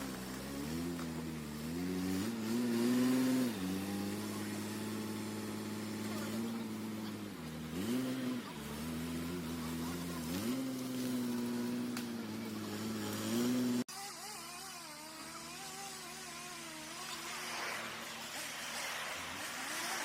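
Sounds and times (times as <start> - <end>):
wood chipper engine running: 0.0 - 20.0.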